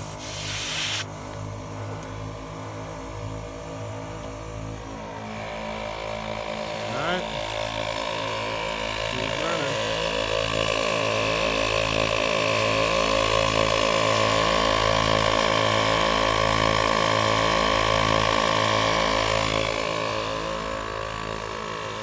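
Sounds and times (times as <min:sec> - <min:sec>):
air compressor running: 0:00.0 - 0:01.9, 0:03.1 - 0:11.1.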